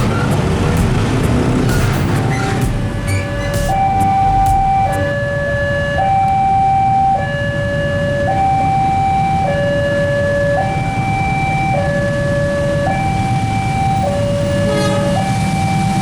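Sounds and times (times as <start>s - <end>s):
low steady rumble: 0.0s - 5.3s
level crossing two-tone alarm: 0.0s - 16.0s.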